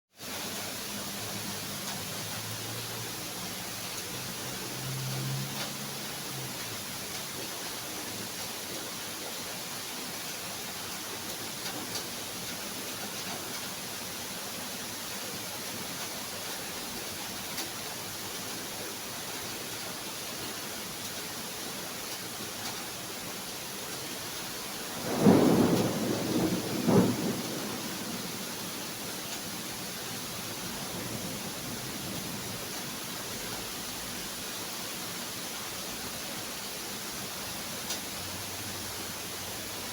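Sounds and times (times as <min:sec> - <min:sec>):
steady rain falling: 0:00.1 - 0:39.9
thunder crack: 0:25.0 - 0:28.4.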